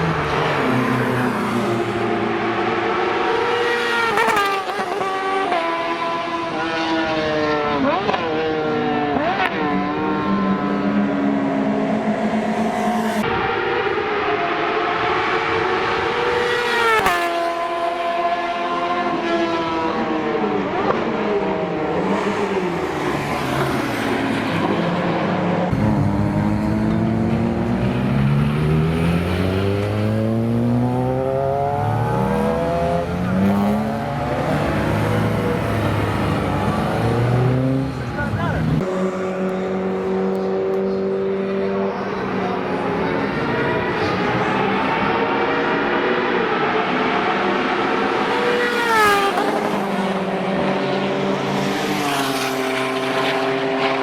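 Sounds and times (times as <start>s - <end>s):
car engine accelerating hard: 15.0s - 54.0s.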